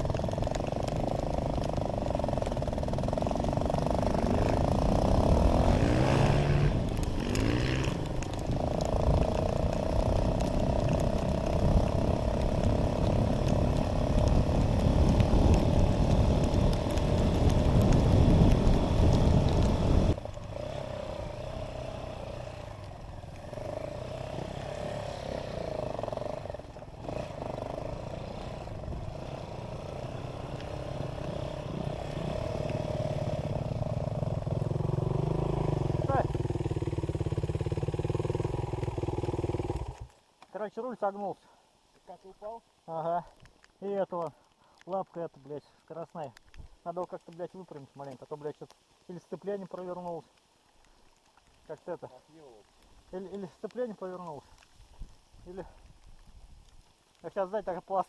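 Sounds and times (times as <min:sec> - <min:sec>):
dirt bike engine revving: 0:00.0 - 0:40.1
wind rush: 0:13.8 - 0:20.2.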